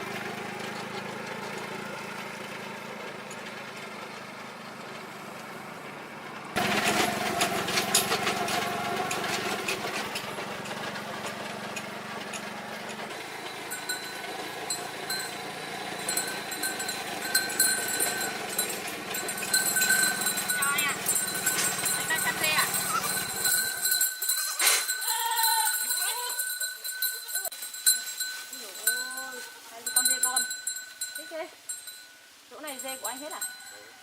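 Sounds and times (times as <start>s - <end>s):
small engine running: 0.0s - 30.6s
dense rattling and clatter: 6.6s - 25.0s
high ringing tones: 13.2s - 34.0s.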